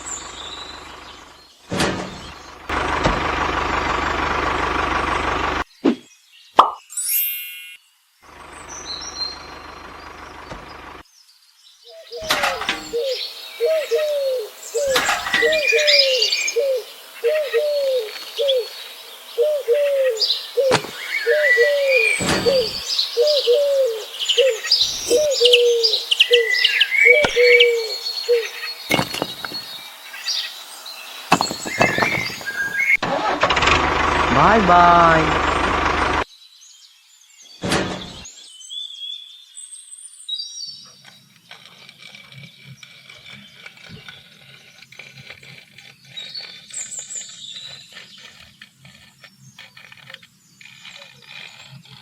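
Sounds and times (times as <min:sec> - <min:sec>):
higher bird chirps and twitters: 0:05.7 - 0:33.0, 0:36.3 - 0:52.0
low bird call: 0:11.9 - 0:29.8
short knocks: 0:31.3 - 0:32.5.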